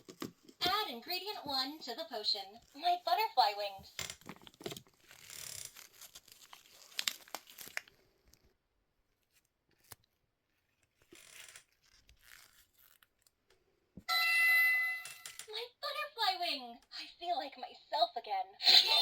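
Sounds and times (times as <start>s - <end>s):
crinkly packet tearing and rustling: 4.2s - 8.5s, 9.2s - 10.2s, 10.8s - 13.4s.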